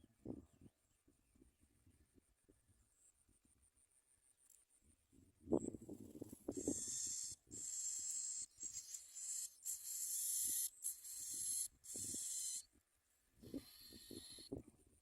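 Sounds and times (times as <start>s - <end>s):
nestlings begging calls: 6.5s - 12.7s, 13.5s - 14.5s.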